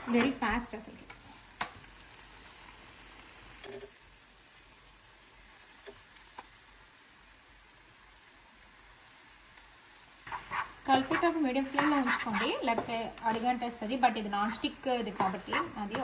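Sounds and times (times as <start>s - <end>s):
food sizzling in a pan: 0.0s - 16.0s
utensil clicking against pan: 15.2s - 16.0s.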